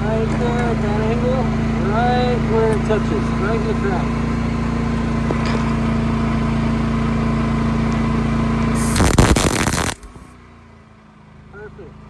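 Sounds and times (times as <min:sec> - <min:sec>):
steady mechanical hum: 0:00.0 - 0:10.6
arc welder crackling: 0:05.9 - 0:10.3.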